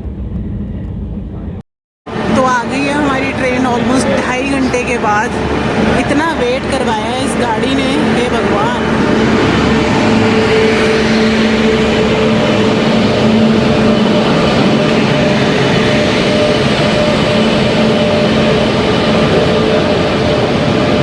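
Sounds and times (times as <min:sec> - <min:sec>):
low hum: 0:00.0 - 0:21.0
train rumble: 0:00.0 - 0:21.0.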